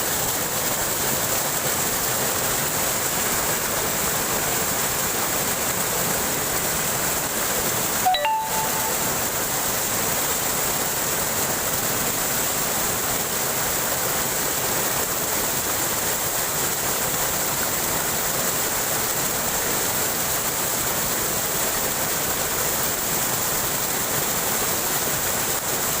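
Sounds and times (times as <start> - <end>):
waterfall rushing: 0.0 - 26.0
short tone: 8.0 - 9.3.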